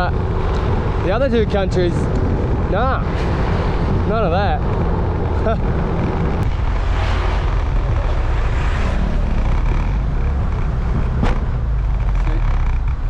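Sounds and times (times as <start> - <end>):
scooter engine and tyres: 0.0 - 13.0
wind rushing over microphone: 0.0 - 13.0
sharp suspension knock: 10.6 - 11.7.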